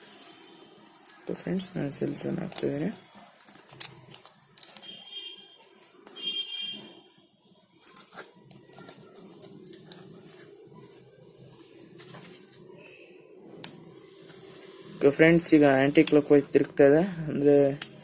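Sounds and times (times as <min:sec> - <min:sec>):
handling noises: 0:00.8 - 0:06.9, 0:07.5 - 0:12.8.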